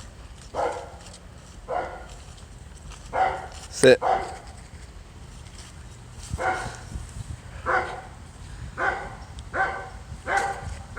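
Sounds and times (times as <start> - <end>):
dog barking: 0.6 - 1.0, 1.7 - 2.1, 3.1 - 4.5, 6.4 - 6.8, 7.6 - 8.1, 8.8 - 10.7.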